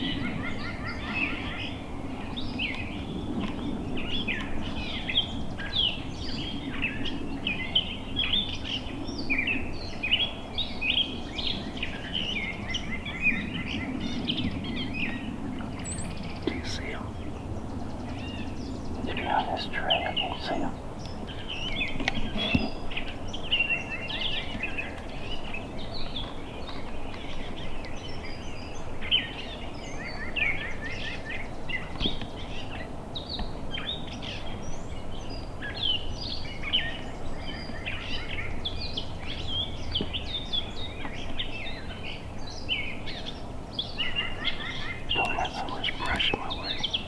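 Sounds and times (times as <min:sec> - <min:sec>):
songbirds chirping and singing: 0:00.0 - 0:47.0
low background hiss: 0:15.7 - 0:21.5, 0:45.0 - 0:47.0.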